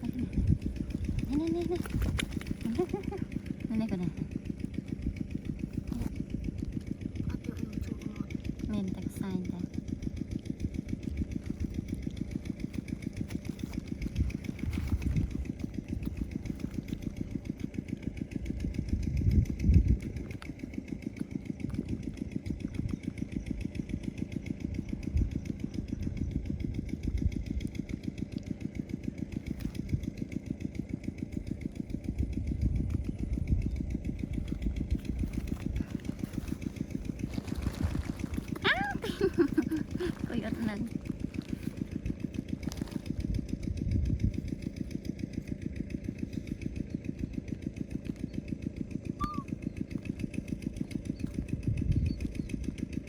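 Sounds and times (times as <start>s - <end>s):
small engine running: 0.0s - 53.0s.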